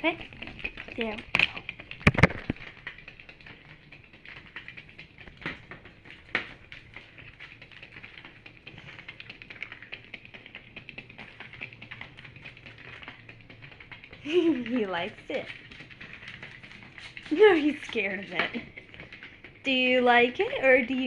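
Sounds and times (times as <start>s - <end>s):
toy mechanism rapid clicking: 0.0s - 21.0s.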